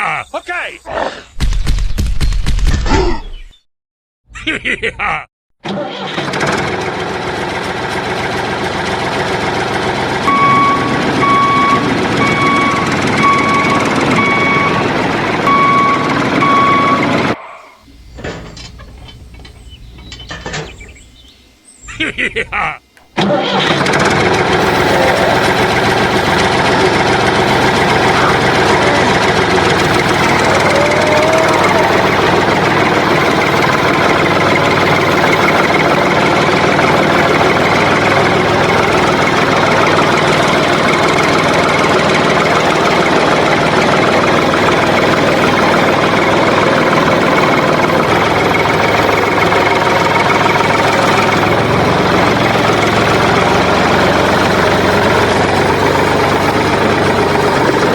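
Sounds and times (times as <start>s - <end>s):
small engine running steadily: 5.7s - 21.9s, 22.6s - 57.9s.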